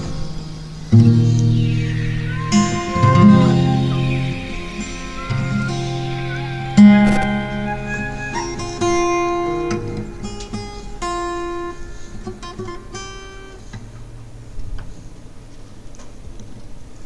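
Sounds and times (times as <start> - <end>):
acoustic guitar chords: 0.0 - 13.6.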